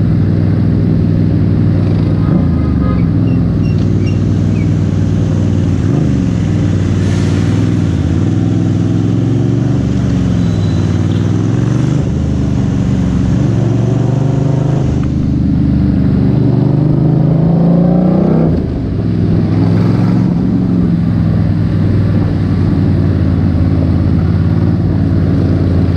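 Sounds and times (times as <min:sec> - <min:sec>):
motorcycle engine revving: 0:00.0 - 0:25.9.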